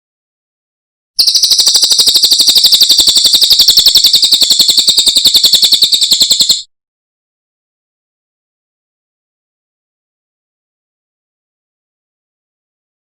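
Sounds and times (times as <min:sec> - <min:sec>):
bird singing fast trill: 0:01.2 - 0:06.6.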